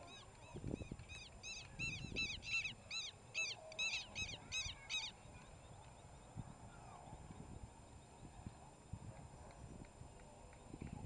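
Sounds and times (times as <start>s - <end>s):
bird harsh alarm calls: 1.1s - 5.2s.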